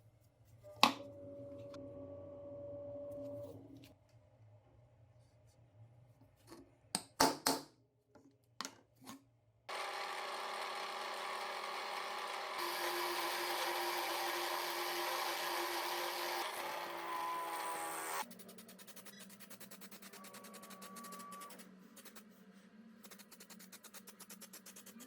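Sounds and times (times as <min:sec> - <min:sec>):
handheld power tool running: 0:09.7 - 0:18.3.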